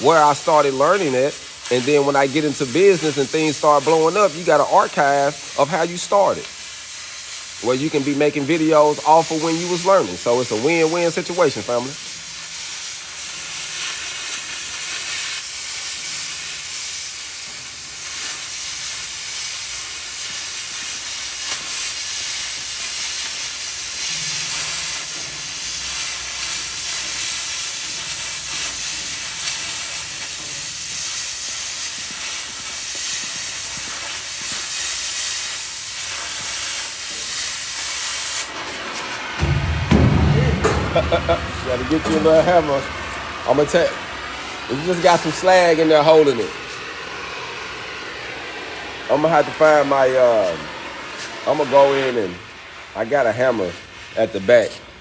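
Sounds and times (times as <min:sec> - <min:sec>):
faint crackling of molten metal: 0:00.0 - 0:39.0
cutting torch hissing: 0:00.0 - 0:55.0.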